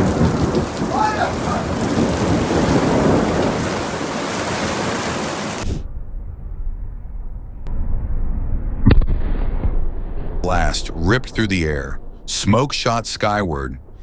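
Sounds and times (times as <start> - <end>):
heavy rain pouring: 0.0 - 5.8
thunder rumbling: 0.0 - 14.0
person shouting: 0.8 - 2.0.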